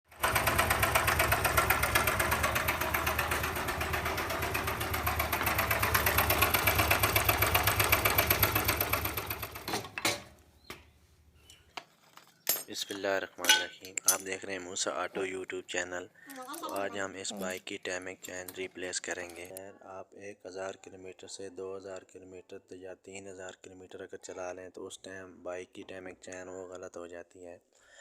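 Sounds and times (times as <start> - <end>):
engine rattling: 0.1 - 9.9
man speaking: 12.7 - 27.6.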